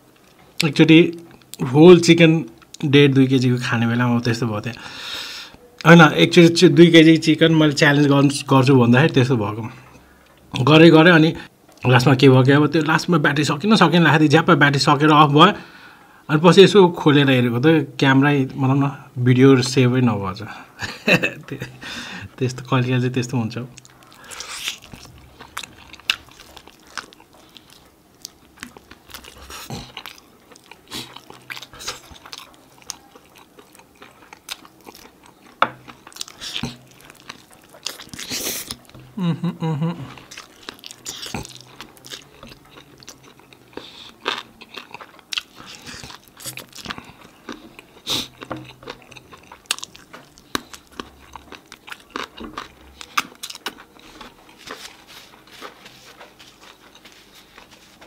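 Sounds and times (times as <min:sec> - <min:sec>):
chewing and biting meat: 0:23.8 - 0:39.0, 0:40.1 - 0:57.8.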